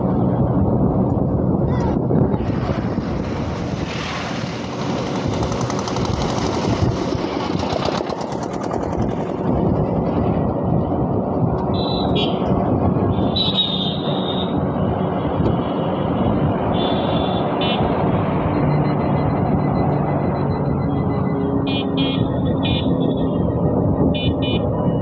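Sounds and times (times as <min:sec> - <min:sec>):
vehicle engine running: 0:05.0 - 0:10.6.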